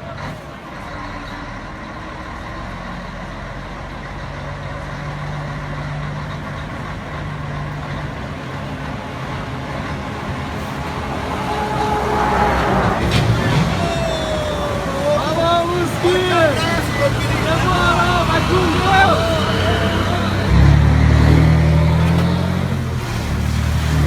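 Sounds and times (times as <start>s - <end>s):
truck diesel engine rumble: 0.0s - 24.0s.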